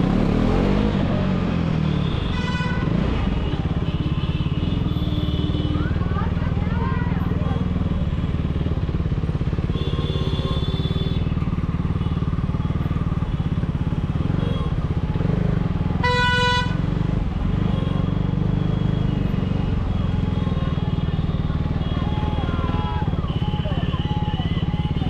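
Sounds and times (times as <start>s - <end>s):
vehicle horn: 2.0s - 5.9s, 9.7s - 12.2s, 16.0s - 16.9s.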